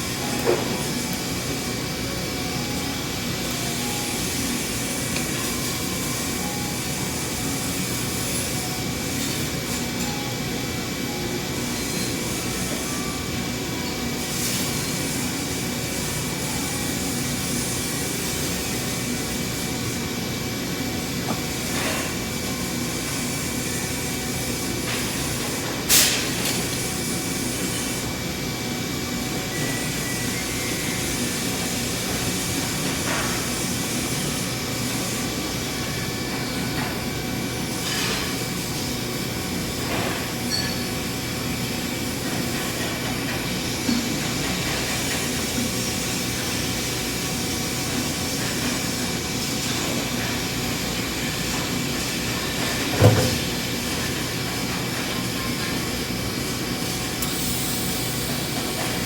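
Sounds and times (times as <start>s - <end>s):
welding arc hissing: 56.8s - 59.0s.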